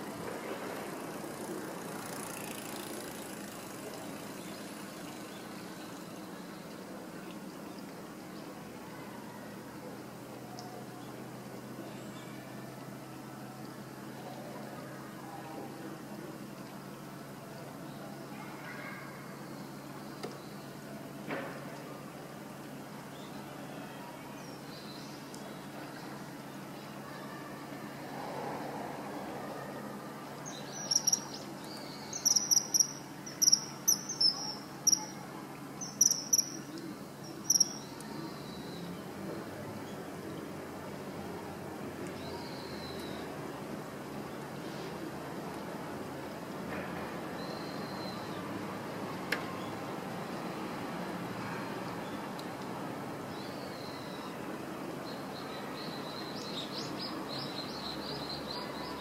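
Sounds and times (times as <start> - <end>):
low background noise: 0.0 - 59.0
steady background noise: 0.0 - 59.0
kingfisher calling: 30.8 - 35.2, 35.8 - 36.7, 37.3 - 37.8.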